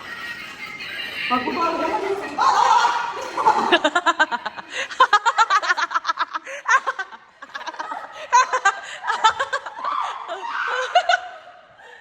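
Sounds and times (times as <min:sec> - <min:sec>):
people laughing: 0:00.0 - 0:12.0.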